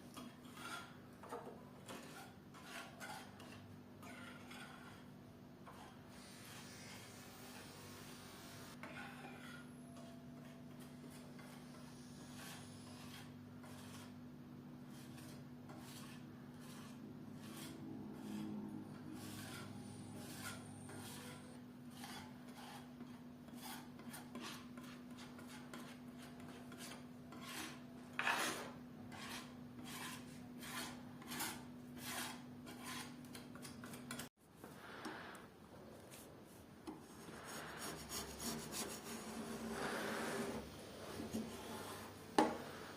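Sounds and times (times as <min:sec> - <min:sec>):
rasping strokes on wood: 0:08.7 - 0:14.2, 0:14.9 - 0:34.3.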